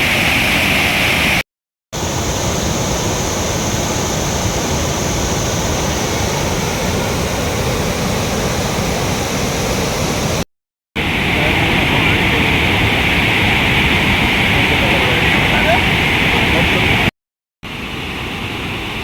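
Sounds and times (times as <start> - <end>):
waterfall roaring: 11.0 - 17.1.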